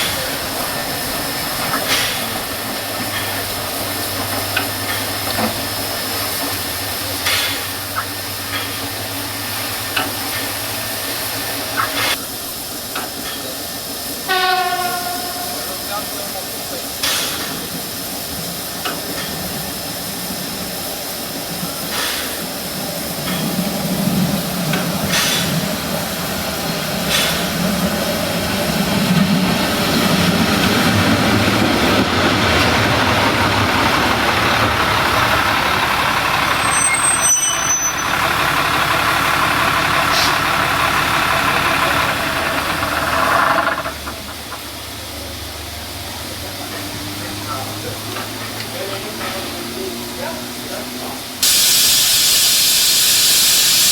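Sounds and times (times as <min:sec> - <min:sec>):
steam train rumble and hiss: 0:00.0 - 0:53.9.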